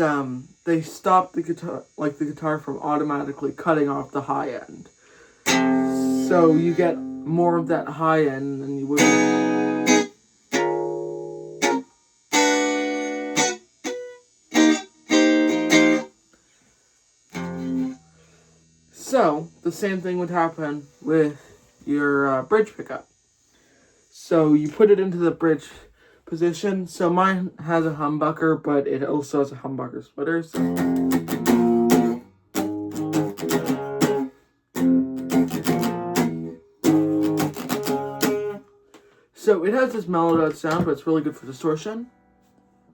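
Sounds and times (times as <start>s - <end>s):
electric guitar strummed chords: 5.5s - 7.7s, 8.8s - 16.1s, 17.3s - 18.1s, 30.5s - 38.6s.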